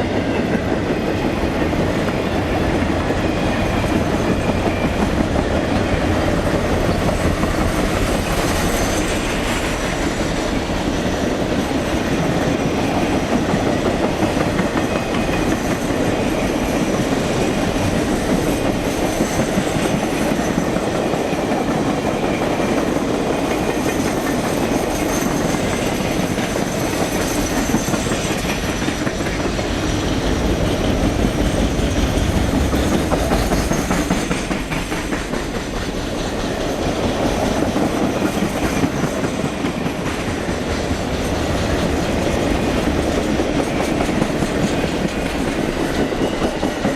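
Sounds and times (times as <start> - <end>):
train wheels on rails: 0.0 - 46.9.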